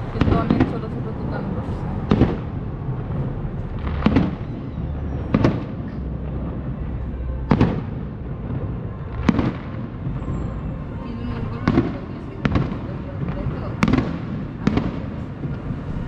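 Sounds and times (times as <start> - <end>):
fireworks bangs: 0.0 - 16.0
low rumble of fireworks display: 0.0 - 16.0.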